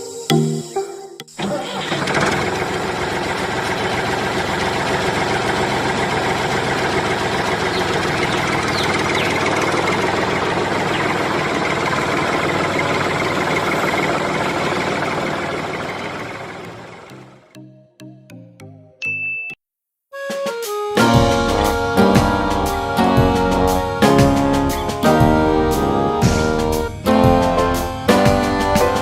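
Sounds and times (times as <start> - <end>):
small engine running: 1.4 - 17.5.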